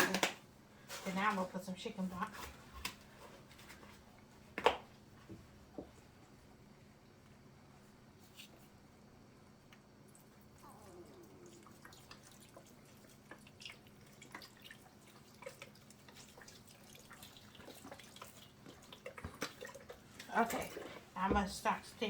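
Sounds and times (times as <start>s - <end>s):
broth pouring and trickling: 10.2s - 20.3s.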